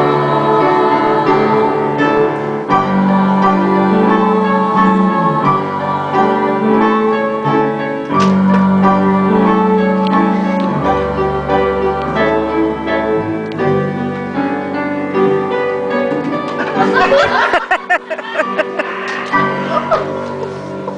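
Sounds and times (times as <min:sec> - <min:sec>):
piano instrumental music: 0:00.0 - 0:20.9.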